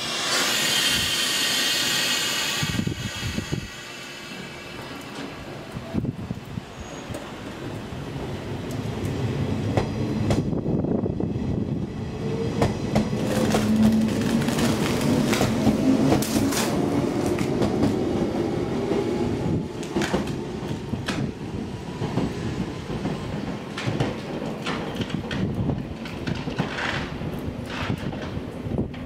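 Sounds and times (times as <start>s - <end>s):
train wheels clacking over rail joints: 12.6s - 18.0s, 19.8s - 21.4s, 22.0s - 29.0s.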